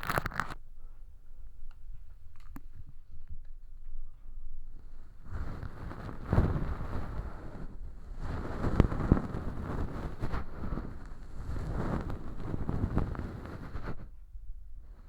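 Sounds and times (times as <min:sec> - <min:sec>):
tweezers crackling fake earwax: 0:00.0 - 0:00.6.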